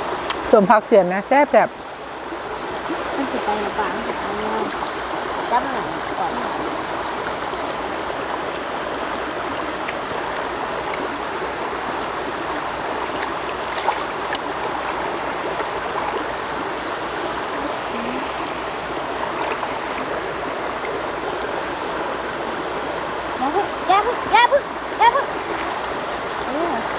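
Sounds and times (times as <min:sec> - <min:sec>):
running water rushing: 0:00.0 - 0:26.9.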